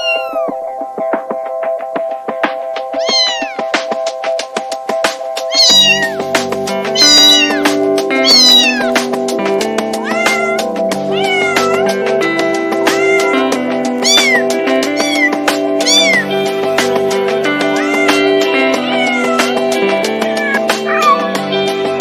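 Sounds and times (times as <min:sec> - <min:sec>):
cat meowing: 0:00.0 - 0:00.6, 0:03.0 - 0:03.7, 0:05.4 - 0:09.0, 0:10.0 - 0:12.0, 0:12.8 - 0:16.5, 0:17.4 - 0:21.4
background music with steady beat: 0:00.0 - 0:22.0.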